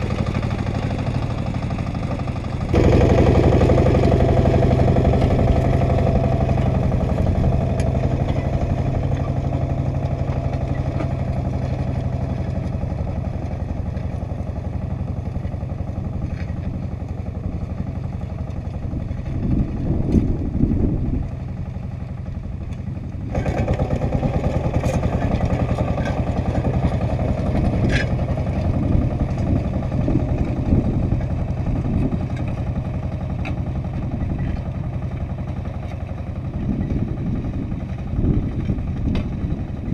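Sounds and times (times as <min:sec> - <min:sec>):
tractor engine under load: 0:00.0 - 0:39.9
machine rattling: 0:02.7 - 0:13.2.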